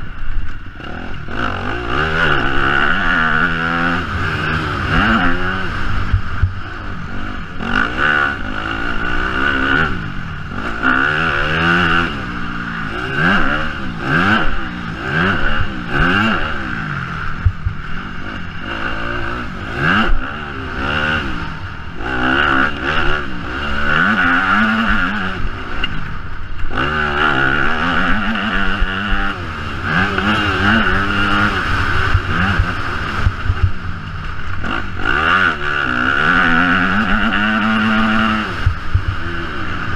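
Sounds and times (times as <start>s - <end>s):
motocross bike engine revving: 0.0s - 39.9s
wind on microphone: 26.6s - 39.9s.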